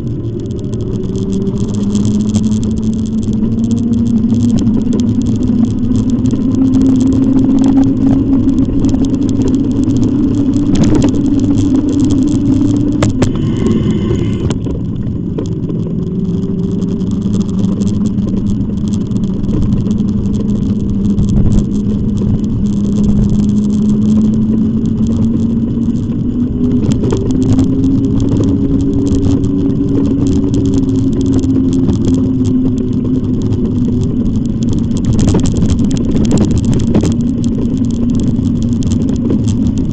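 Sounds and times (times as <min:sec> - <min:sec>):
e-bike motor hum: 0:00.0 - 0:39.9
tyre and wind noise: 0:00.0 - 0:39.9.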